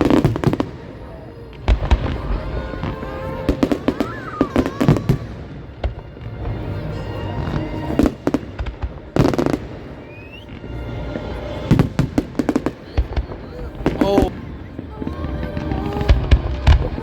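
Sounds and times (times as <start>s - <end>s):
fireworks bangs and crackles: 0.0s - 17.0s
rising firework whistle: 9.4s - 10.7s.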